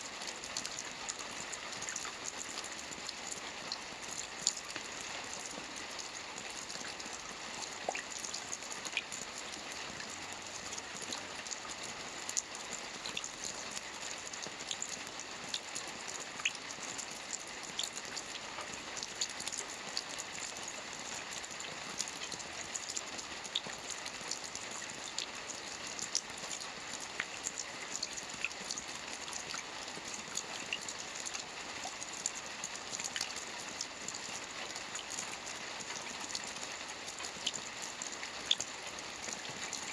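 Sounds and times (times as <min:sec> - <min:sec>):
rain falling on water: 0:00.0 - 0:39.9.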